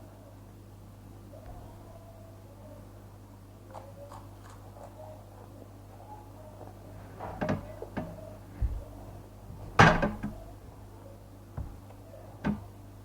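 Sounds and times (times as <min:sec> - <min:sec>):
knocks and clunks of objects handled: 0:07.0 - 0:10.9, 0:11.6 - 0:12.8.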